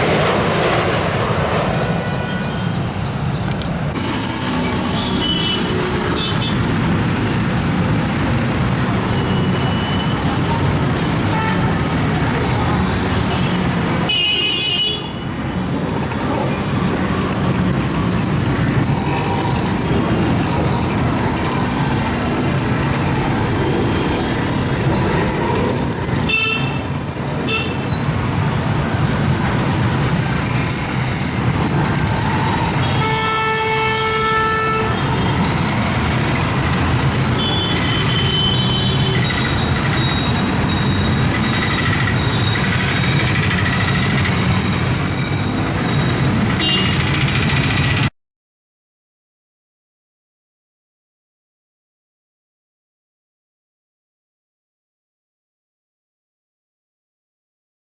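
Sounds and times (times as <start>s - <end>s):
loud steady roar: 0.0s - 14.2s, 16.4s - 26.6s, 28.5s - 48.0s.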